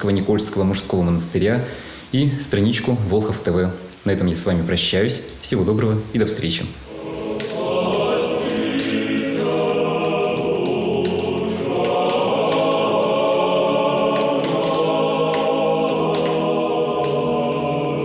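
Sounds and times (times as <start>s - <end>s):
choir singing slow chords: 6.8s - 18.0s.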